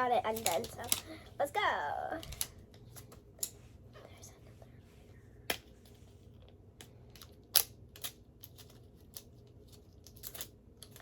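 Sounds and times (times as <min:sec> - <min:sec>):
plastic and card rustling: 0:00.0 - 0:04.2.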